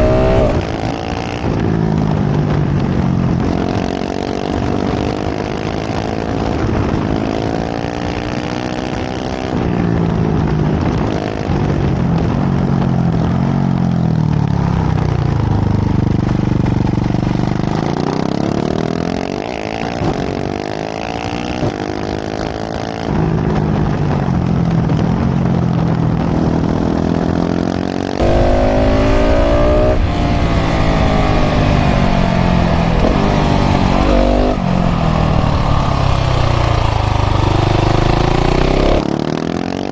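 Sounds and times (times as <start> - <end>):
motorcycle engine revving: 0.0 - 11.6, 12.8 - 39.9
wind rush on microphone: 28.2 - 38.6.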